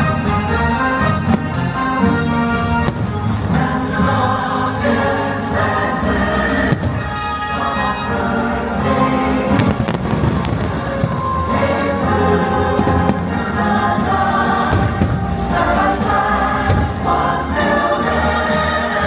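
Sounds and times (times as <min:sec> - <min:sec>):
choir singing sustained chords: 0:00.0 - 0:19.0
orchestral music: 0:00.0 - 0:19.0
fireworks bangs: 0:06.6 - 0:08.0, 0:09.5 - 0:18.2.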